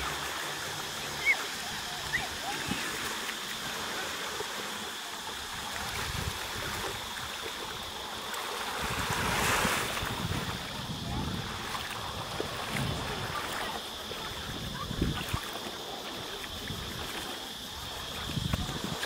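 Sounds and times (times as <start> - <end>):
sea surf washing in: 0.0 - 19.0
wave breaking: 8.5 - 13.8.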